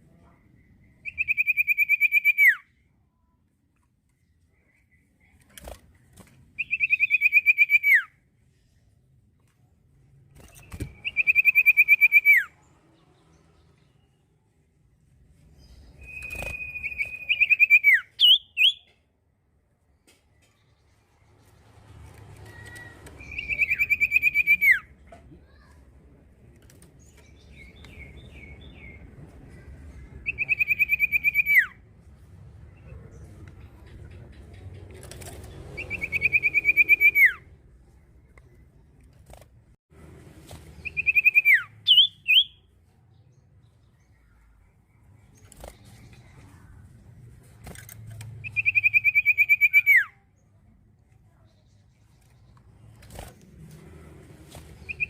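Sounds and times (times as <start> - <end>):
bird singing trilled phrases: 0.6 - 2.8, 6.6 - 8.1, 10.5 - 12.5, 15.6 - 18.9, 22.6 - 24.9, 30.2 - 31.7, 40.8 - 42.7, 48.4 - 50.3.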